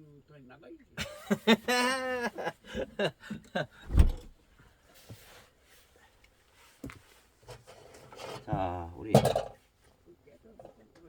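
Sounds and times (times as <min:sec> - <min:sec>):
knocks and scrapes: 0:03.8 - 0:04.3, 0:06.8 - 0:09.6
heavy deep thump: 0:03.9 - 0:04.3.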